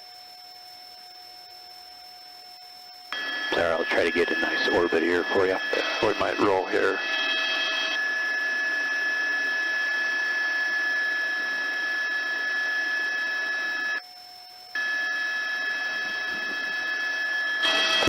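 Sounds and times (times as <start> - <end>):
helicopter cabin hiss and whine: 3.2 - 14.0, 14.8 - 18.0.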